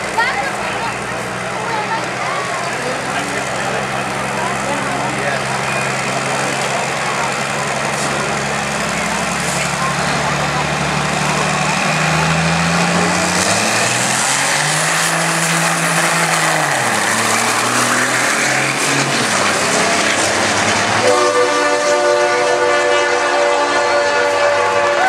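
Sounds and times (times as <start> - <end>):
diesel engine roaring: 0.0 - 25.0
air horn: 21.0 - 25.0.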